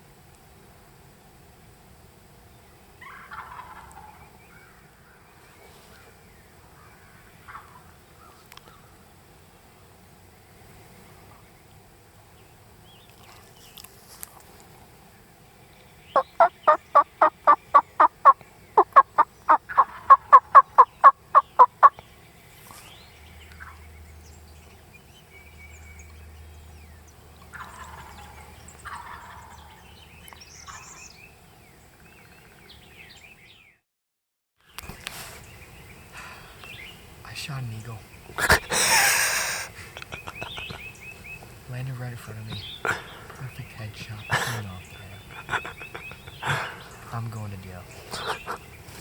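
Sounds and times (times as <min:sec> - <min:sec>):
wild turkey yelping: 0:03.0 - 0:04.8, 0:07.4 - 0:08.8, 0:16.2 - 0:22.0, 0:27.5 - 0:29.8.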